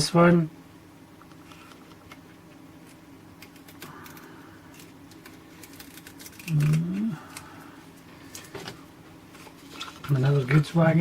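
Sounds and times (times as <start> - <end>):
faint steady hum: 0.0 - 11.0
person humming: 6.4 - 7.7.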